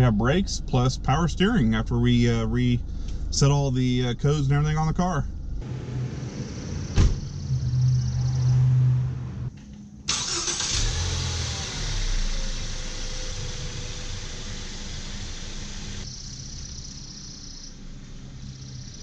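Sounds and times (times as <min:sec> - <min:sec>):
car engine starting and running: 0:00.0 - 0:18.9
hissy engine noise with falling tone: 0:05.6 - 0:09.5, 0:10.1 - 0:19.0.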